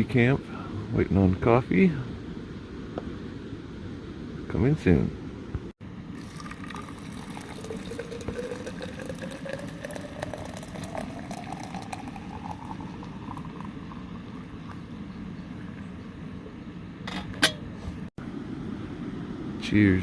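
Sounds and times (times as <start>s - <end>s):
coffee pouring into cup: 6.2s - 15.0s.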